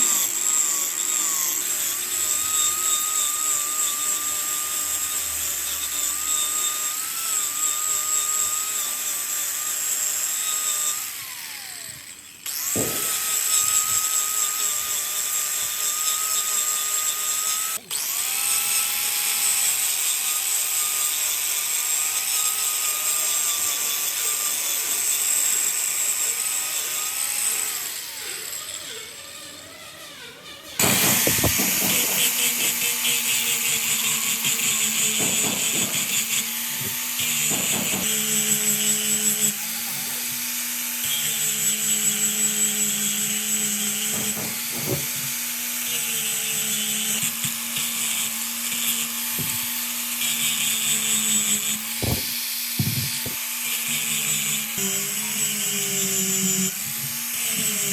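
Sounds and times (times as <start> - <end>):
power tool cutting wood: 0.0 - 57.9
machine whining: 26.8 - 40.9.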